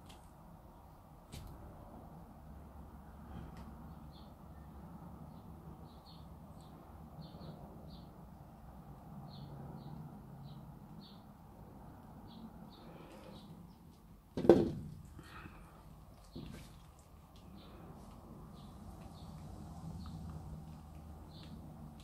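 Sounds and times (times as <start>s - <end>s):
loud thump: 14.4s - 14.9s.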